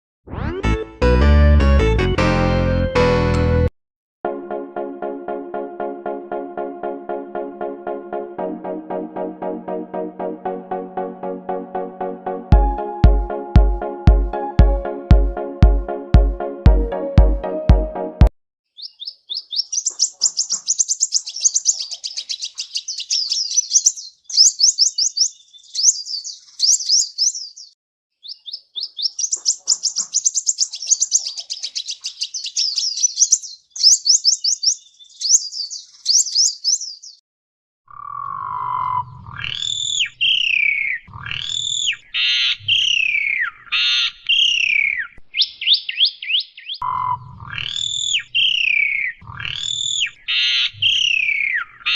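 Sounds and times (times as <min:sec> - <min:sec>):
dull low thuds: 0:12.5 - 0:17.8
songbird chirping: 0:18.7 - 0:37.2, 0:37.9 - 0:51.9.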